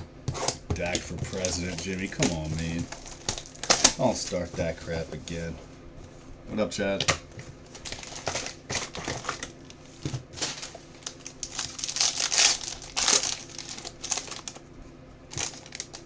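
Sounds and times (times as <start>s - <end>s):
plastic wrapping crinkling and tearing: 0.8s - 5.5s, 7.6s - 14.7s, 15.3s - 16.0s.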